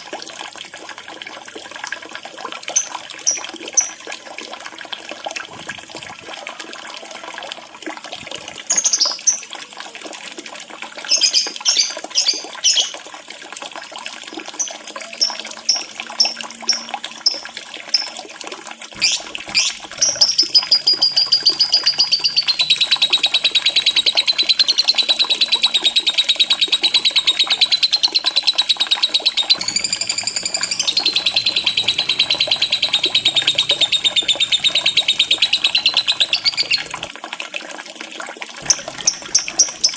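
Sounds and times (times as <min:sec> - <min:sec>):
trickling water: 0:00.0 - 0:39.9
bird chirping and trilling: 0:11.1 - 0:13.0, 0:14.5 - 0:18.1, 0:19.0 - 0:37.1, 0:38.6 - 0:39.9.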